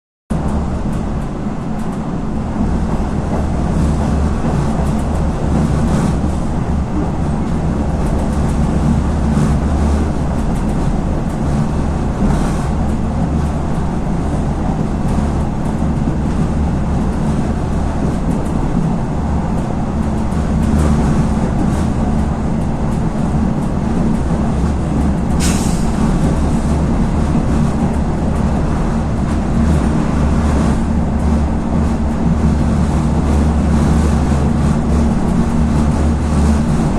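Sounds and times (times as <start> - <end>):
railcar engine drone: 0.3 - 36.9
short hiss: 25.4 - 26.0.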